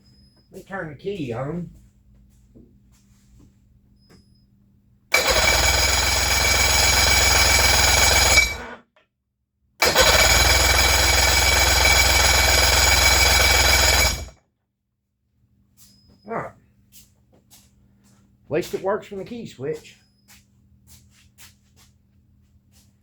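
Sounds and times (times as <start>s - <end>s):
outboard engine electric starter cranking: 5.1s - 8.6s, 9.8s - 14.3s.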